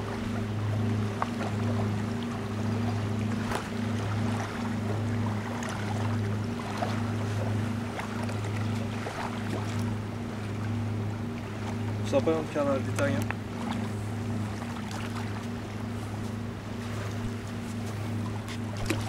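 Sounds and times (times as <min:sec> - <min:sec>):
boat engine humming: 0:00.0 - 0:19.0
light clicks and ticks: 0:12.9 - 0:13.4.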